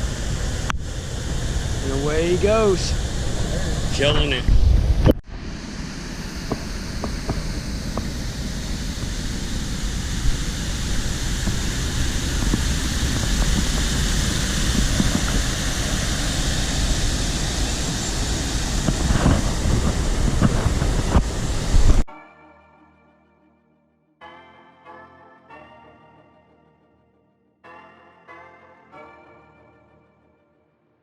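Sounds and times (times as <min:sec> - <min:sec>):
wind buffeting microphone: 0:00.0 - 0:05.2, 0:05.9 - 0:22.1.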